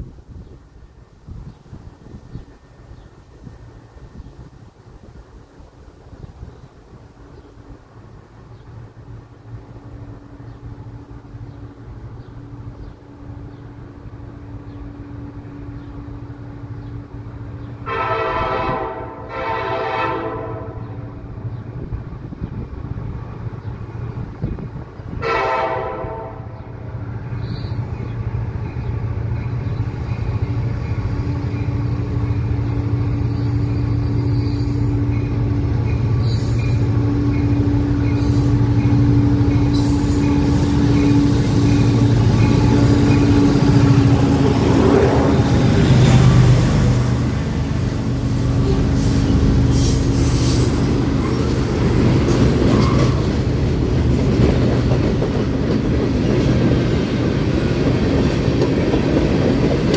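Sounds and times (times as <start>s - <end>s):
freight train rumble: 0.0s - 59.9s
locomotive air horn blasts: 17.8s - 21.1s, 25.1s - 26.8s.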